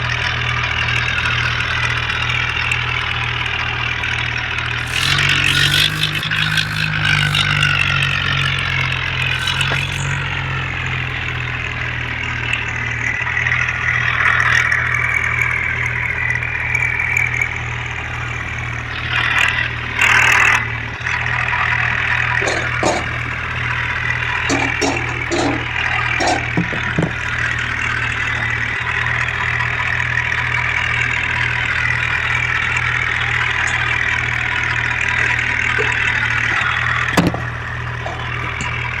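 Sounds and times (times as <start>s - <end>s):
tractor engine running: 0.0s - 39.0s
knocks and clatters: 22.2s - 23.5s, 24.2s - 27.6s, 35.2s - 39.0s.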